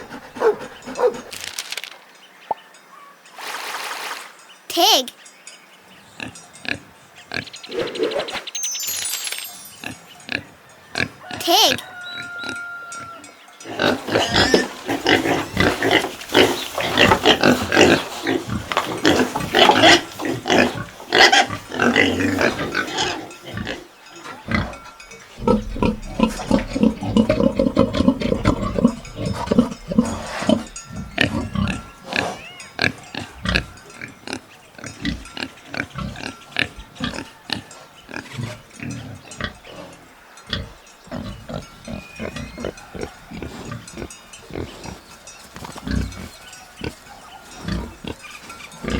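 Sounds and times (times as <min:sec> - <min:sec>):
pigs grunting: 0:00.0 - 0:01.4, 0:13.6 - 0:48.9
pigs squealing: 0:10.2 - 0:38.6, 0:39.4 - 0:45.0.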